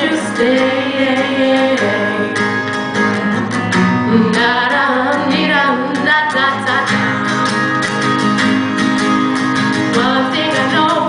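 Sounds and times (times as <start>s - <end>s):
woman singing: 0.0s - 2.6s, 4.0s - 7.4s, 9.9s - 11.0s
acoustic guitar strumming: 0.0s - 11.0s.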